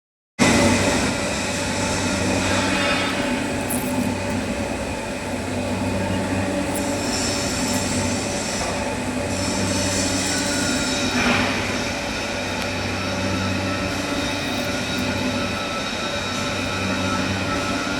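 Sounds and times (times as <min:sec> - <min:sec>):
metal lathe humming: 0:00.4 - 0:17.9
high hissing squeal: 0:05.8 - 0:17.9.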